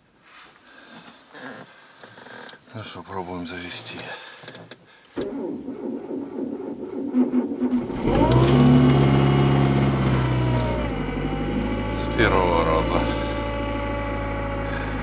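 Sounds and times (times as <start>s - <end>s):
starter motor cranking: 7.6s - 15.0s
car engine revving and idling: 7.7s - 15.0s.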